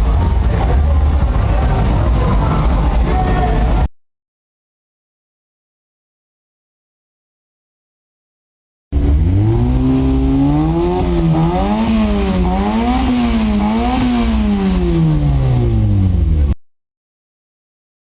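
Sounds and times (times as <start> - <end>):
car engine revving: 8.9 - 16.6.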